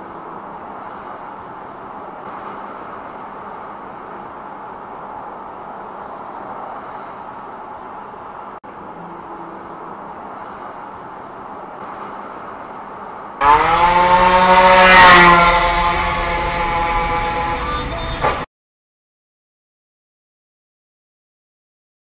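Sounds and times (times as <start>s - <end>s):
road noise: 0.0s - 18.5s
loud engine revving: 13.4s - 18.3s.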